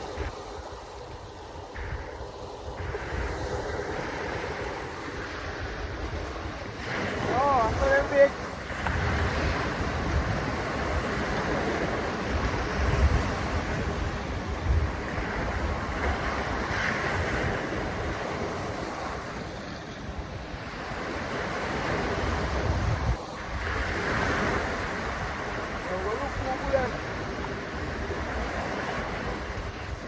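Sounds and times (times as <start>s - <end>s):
rushing water and waves: 0.0s - 30.0s
wind buffeting microphone: 0.0s - 30.0s.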